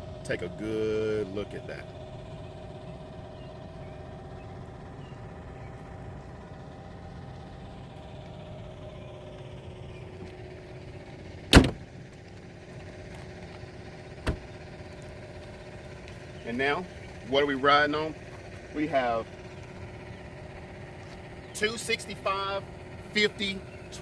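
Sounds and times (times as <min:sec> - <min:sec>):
steady low hum: 0:00.0 - 0:24.0
car hood slamming shut: 0:11.5 - 0:11.9, 0:14.2 - 0:14.5.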